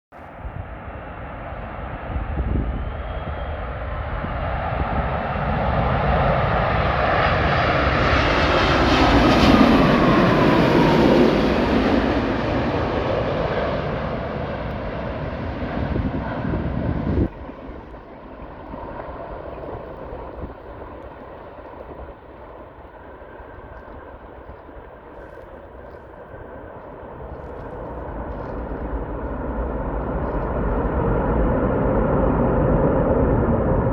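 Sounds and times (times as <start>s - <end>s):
jet airliner passing: 0.2s - 33.9s
jet engine whine: 0.2s - 33.9s.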